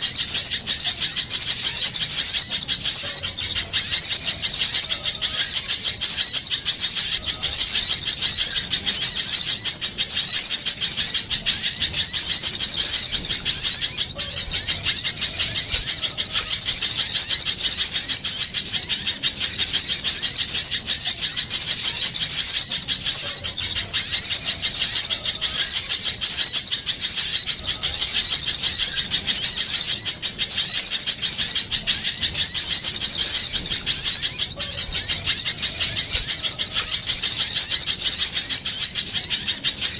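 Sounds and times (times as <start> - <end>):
small birds chattering: 0.0 - 39.9.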